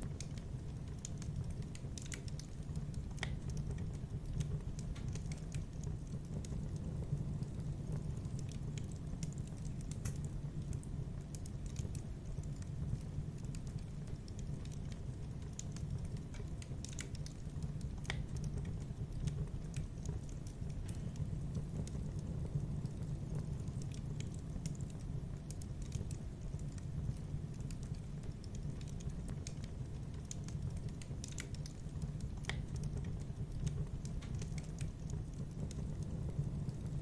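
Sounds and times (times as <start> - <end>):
wood fire crackling and popping: 0.0 - 37.0.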